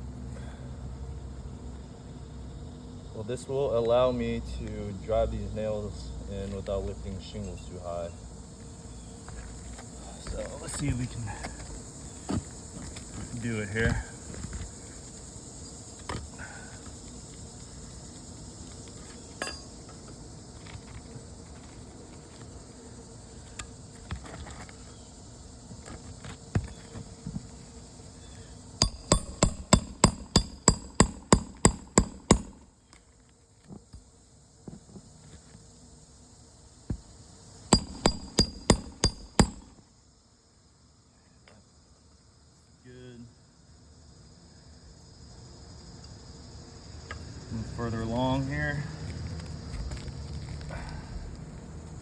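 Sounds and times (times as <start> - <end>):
insects buzzing: 0.0 - 52.0
hammer striking metal tool: 19.4 - 19.7, 28.8 - 32.6, 37.8 - 39.7.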